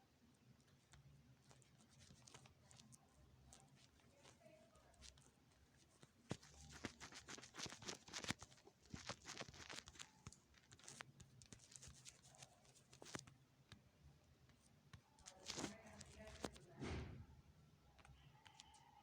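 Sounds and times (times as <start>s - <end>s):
brief rustles: 1.4s - 13.3s, 15.2s - 17.2s
faint clicks: 17.9s - 19.0s.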